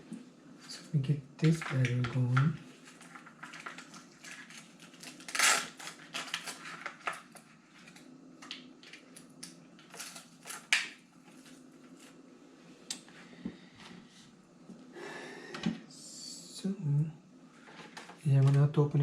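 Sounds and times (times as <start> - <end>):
plastic parts clicking and rattling: 1.4 - 11.0
loud plastic crunch: 2.9 - 8.0, 9.8 - 11.0.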